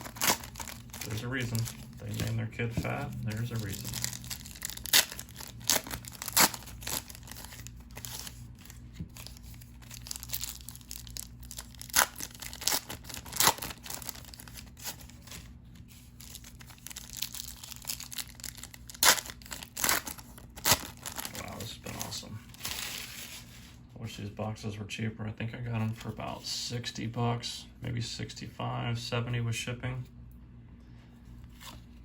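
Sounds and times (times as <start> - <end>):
wrapper crinkling: 0.0 - 23.5.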